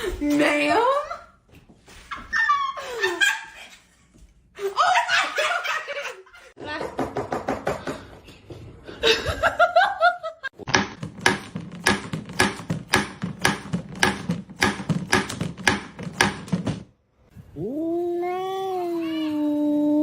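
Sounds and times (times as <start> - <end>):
cat yowling: 17.6 - 20.0.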